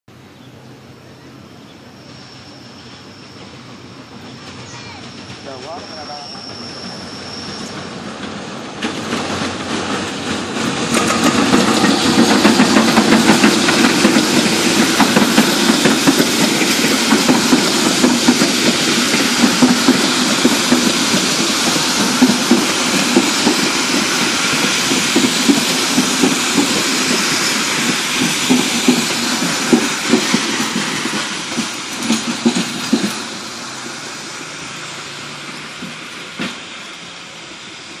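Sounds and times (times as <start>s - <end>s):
train rushing rumble: 0.2s - 38.0s
wheels clattering over rail joints: 7.4s - 33.4s.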